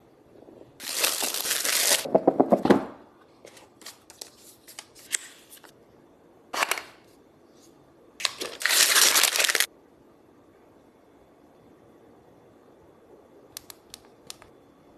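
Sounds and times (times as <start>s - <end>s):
packaging tearing and rustling: 0.8s - 2.1s, 8.2s - 9.7s.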